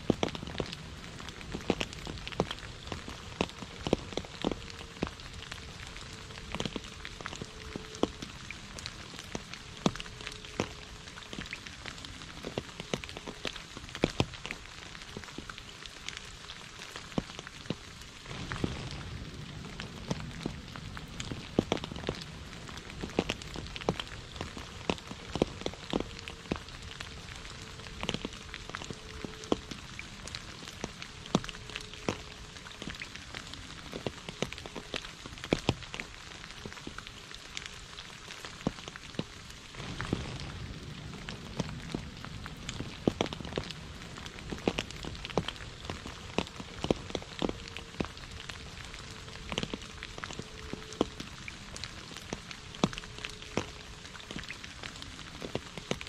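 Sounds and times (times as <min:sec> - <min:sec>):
steady rain hissing: 0:00.0 - 0:56.0
drops ticking on water: 0:01.4 - 0:16.2, 0:21.2 - 0:37.8, 0:42.7 - 0:56.0.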